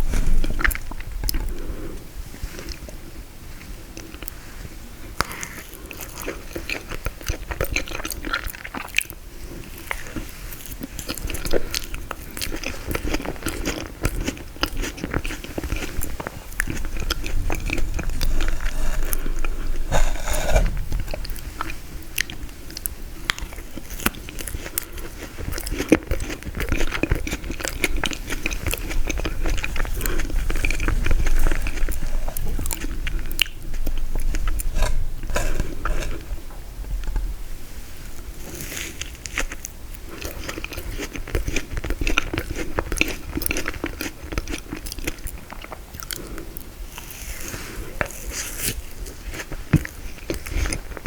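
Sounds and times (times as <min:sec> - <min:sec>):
crunchy bites of frozen dessert: 0:05.1 - 0:36.3, 0:38.4 - 0:51.0
wet mouth sounds: 0:11.0 - 0:36.4.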